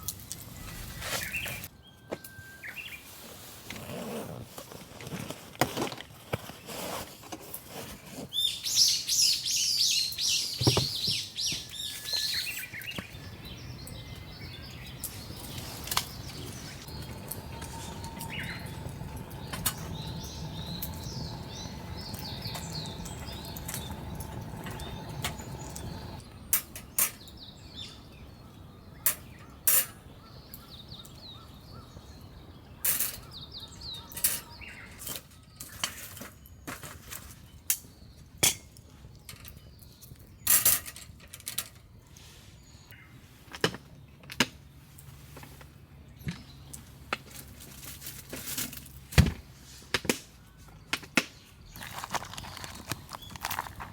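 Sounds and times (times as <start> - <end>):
small birds chirping: 0.0 - 3.3, 7.9 - 40.5, 50.4 - 53.9
steady low rumble: 13.2 - 26.2.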